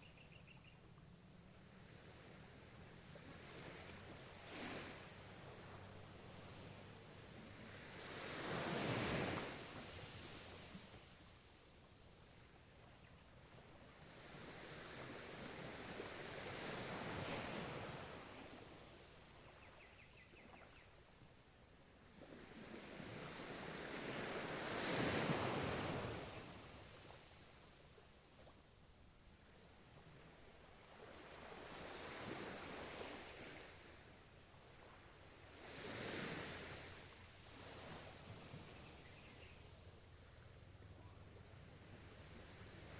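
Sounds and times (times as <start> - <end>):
ocean waves breaking: 1.7 - 11.0, 34.8 - 38.9.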